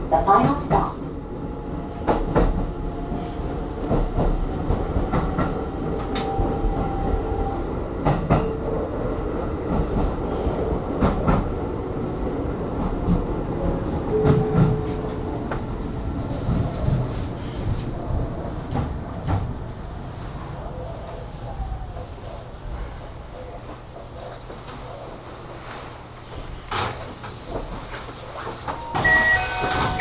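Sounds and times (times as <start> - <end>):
train running over rails: 0.0 - 24.8, 25.6 - 30.0
train motor whine: 28.8 - 30.0.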